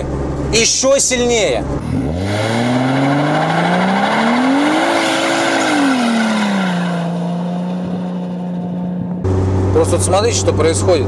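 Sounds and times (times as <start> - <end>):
car engine revving hard: 1.8 - 9.7.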